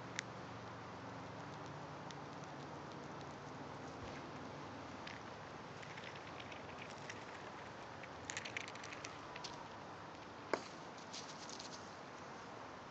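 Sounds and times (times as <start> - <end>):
chipmunk cracking seeds: 1.2 - 10.3.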